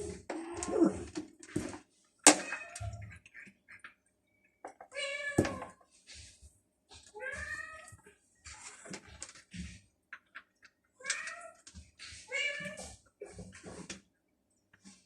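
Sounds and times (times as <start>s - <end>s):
cats meowing: 7.1s - 8.8s, 10.2s - 13.4s.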